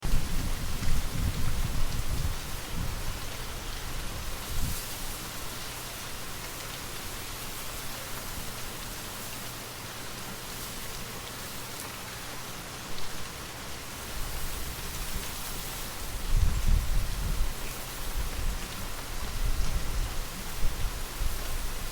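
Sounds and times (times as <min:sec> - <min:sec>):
wind rumble: 0:00.0 - 0:04.8, 0:16.0 - 0:21.9
rain pattering: 0:00.0 - 0:21.9.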